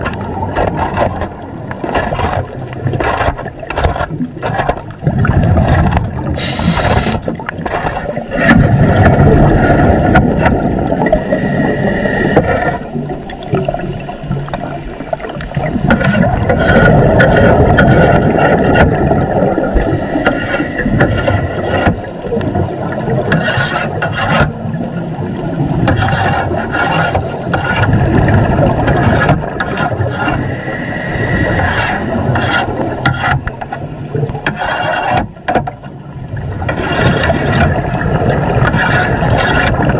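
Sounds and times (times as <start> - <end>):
scuba exhale bubbling: 5.1 - 23.3, 27.9 - 33.0.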